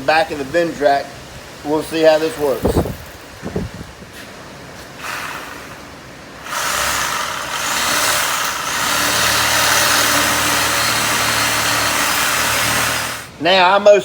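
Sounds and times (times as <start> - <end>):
power tool cutting steel: 6.4 - 13.3.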